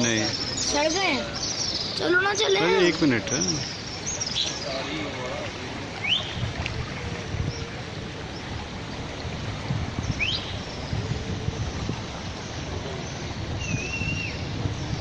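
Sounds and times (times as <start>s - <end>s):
river flowing: 0.0s - 15.0s
bird chirping and whistling: 13.6s - 14.5s.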